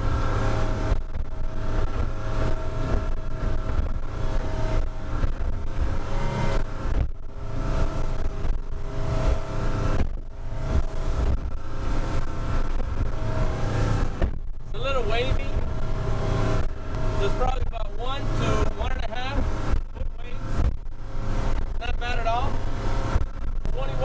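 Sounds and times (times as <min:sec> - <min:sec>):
hull thumping and splashing on waves: 0:00.0 - 0:14.7
outboard engine running: 0:00.0 - 0:24.0.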